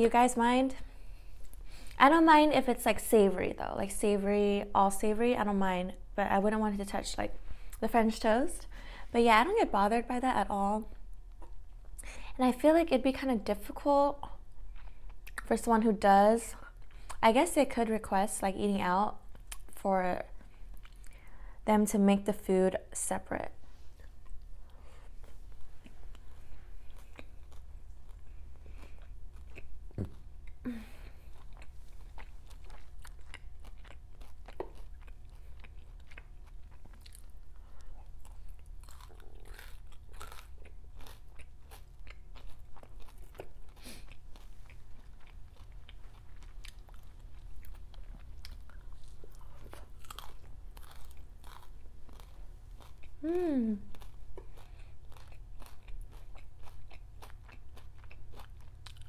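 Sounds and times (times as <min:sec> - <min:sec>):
steady low hum: 0:00.0 - 0:59.0
close chewing with soft crunches: 0:10.9 - 0:12.0, 0:14.2 - 0:15.5, 0:19.1 - 0:21.5, 0:23.6 - 0:59.0.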